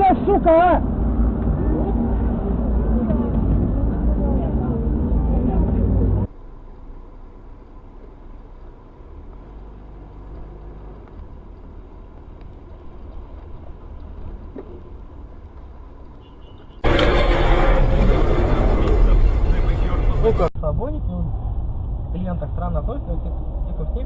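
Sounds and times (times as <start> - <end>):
engine and road noise: 0.0 - 24.0
vehicle driving rumble: 0.0 - 24.0.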